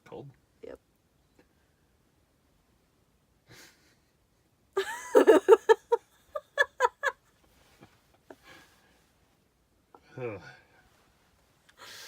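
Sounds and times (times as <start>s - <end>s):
person laughing: 4.8s - 7.2s.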